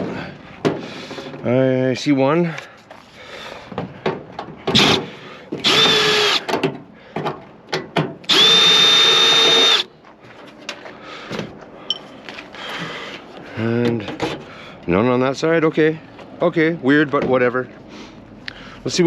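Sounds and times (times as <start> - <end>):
power drill running: 4.8 - 6.4, 8.3 - 9.9
handling clicks and knocks: 6.4 - 8.3.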